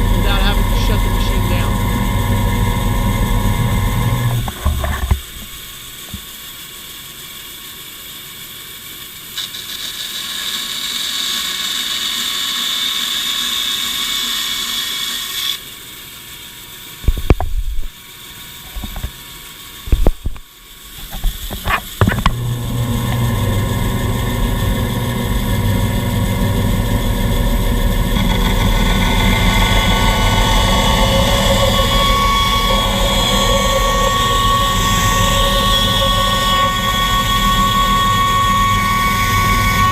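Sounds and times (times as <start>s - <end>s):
heavy low hum: 0.0s - 5.0s
band saw running: 0.0s - 6.2s, 20.7s - 39.9s.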